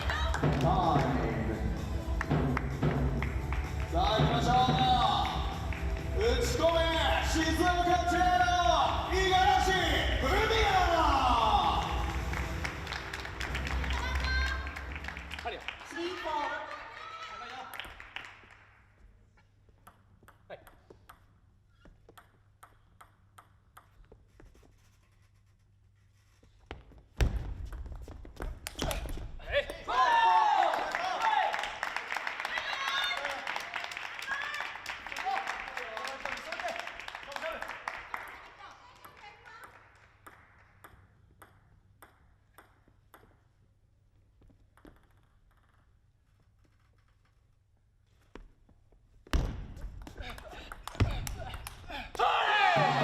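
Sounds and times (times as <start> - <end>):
table tennis ball bouncing: 19.7 - 24.2, 39.0 - 43.7, 44.4 - 46.0, 50.1 - 51.9.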